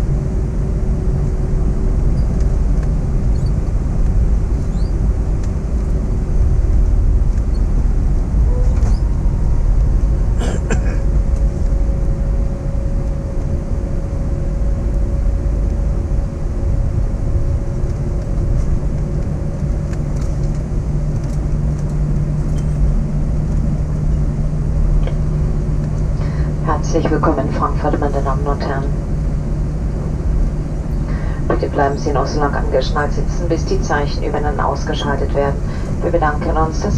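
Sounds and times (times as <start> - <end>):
steady hum: 0.0 - 36.9.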